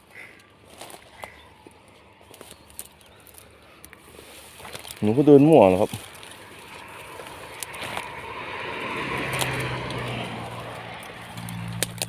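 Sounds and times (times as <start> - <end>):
low engine hum: 0.0 - 12.0
vehicle passing by: 3.9 - 12.0
sharp clicks: 11.0 - 12.0.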